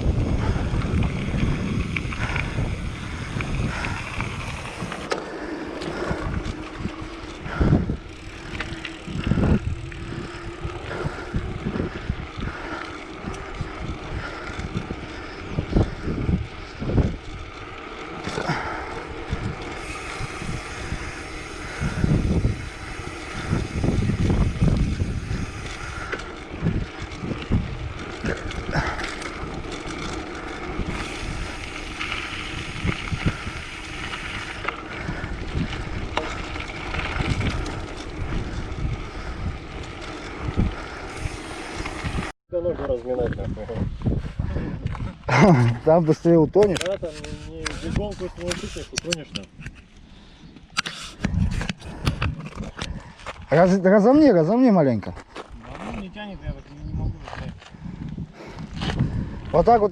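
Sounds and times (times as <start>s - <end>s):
bicycle rolling on road: 0.0s - 59.9s
wind buffeting microphone: 0.0s - 59.9s.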